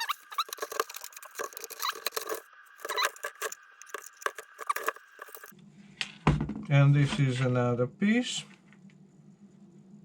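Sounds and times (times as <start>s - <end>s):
plastic parts clicking and squeaking: 0.0s - 5.5s.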